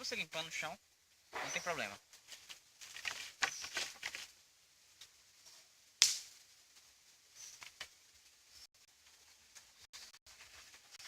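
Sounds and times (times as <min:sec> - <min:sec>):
dry twigs crackling and snapping: 0:02.1 - 0:04.4, 0:06.0 - 0:08.0.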